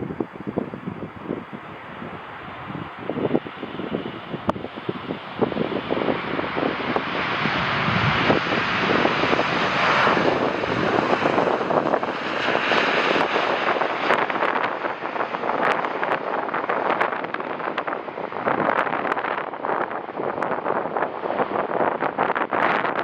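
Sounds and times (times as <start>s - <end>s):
jet airliner passing: 0.0s - 23.0s
wind buffeting microphone: 0.0s - 23.0s.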